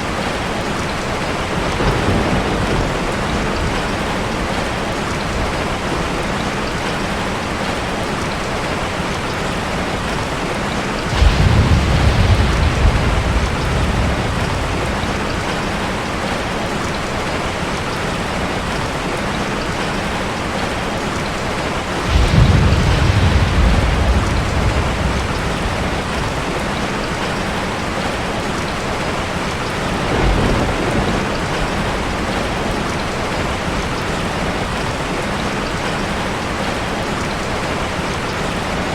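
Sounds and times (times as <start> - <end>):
steady rain: 0.0 - 38.9
low rumbles of thunder: 1.5 - 6.2, 11.0 - 18.1, 21.9 - 35.6.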